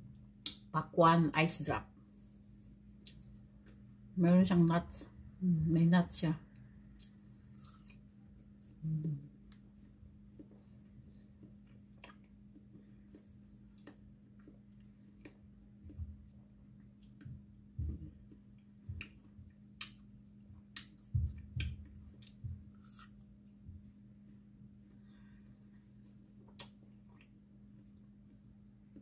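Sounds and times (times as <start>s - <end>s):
steady low hum: 0.0s - 29.0s
soft chewing thumps: 8.6s - 24.0s.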